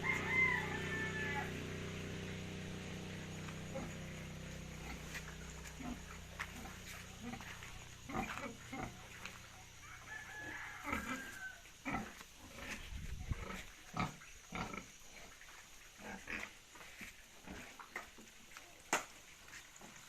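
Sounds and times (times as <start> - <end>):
rooster crowing: 0.0 - 2.4, 9.6 - 12.0
pigs grunting: 0.0 - 9.6, 10.8 - 16.6.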